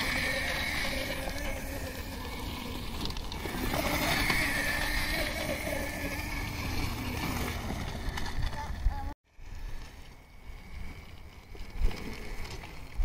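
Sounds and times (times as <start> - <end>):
electric motor whining: 0.0 - 8.9.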